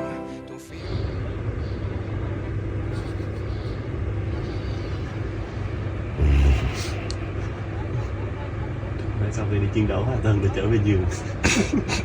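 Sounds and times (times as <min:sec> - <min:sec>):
faint voices: 0:00.0 - 0:12.0
steady low rumble: 0:00.5 - 0:12.0.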